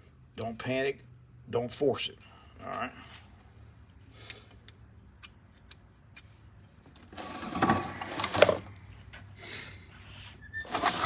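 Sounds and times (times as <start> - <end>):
metal scraping and clinking: 10.6 - 11.0.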